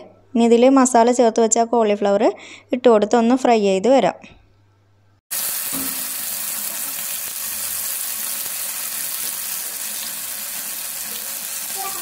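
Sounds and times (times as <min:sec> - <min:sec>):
cauliflower frying in hot oil: 0:05.3 - 0:12.0.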